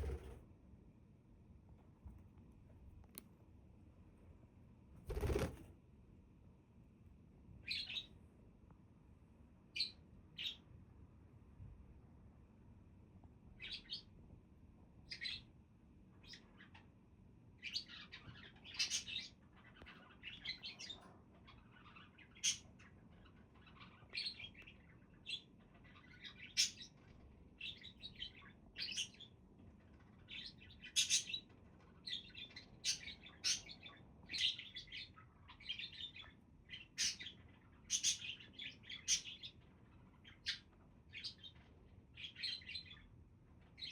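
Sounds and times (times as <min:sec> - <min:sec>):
budgerigars chirping: 0:32.1 - 0:39.6.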